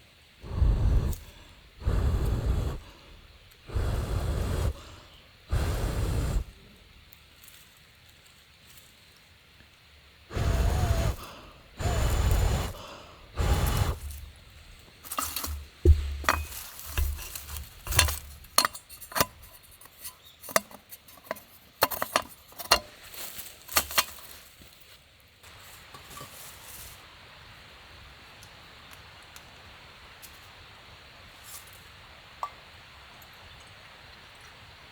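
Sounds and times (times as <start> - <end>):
short rushing bursts: 0.4 - 6.6, 10.3 - 14.4
metal cookware clinking: 15.2 - 23.0.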